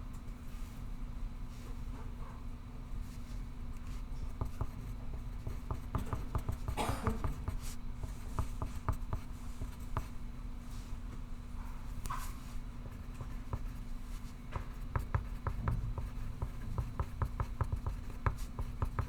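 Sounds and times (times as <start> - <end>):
steady low hum: 0.0 - 19.0
pencil writing on paper: 4.3 - 10.2, 12.9 - 19.0.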